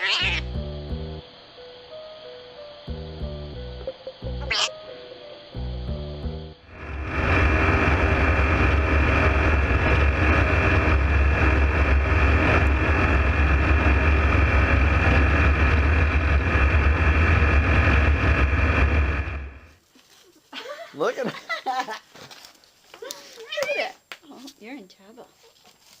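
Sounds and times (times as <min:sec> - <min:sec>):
engine rumbling with high whine: 0:05.6 - 0:19.8.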